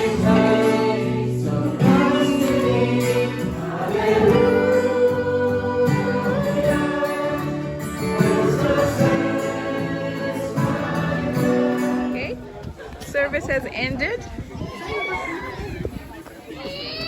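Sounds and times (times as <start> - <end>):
choir singing a hymn: 0.0 - 12.5.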